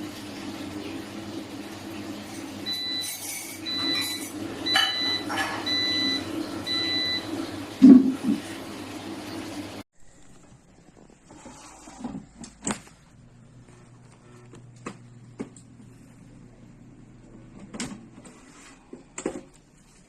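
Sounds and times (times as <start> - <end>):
air fryer beeping: 0.0 - 9.7, 12.5 - 18.2
fan humming: 0.0 - 20.0.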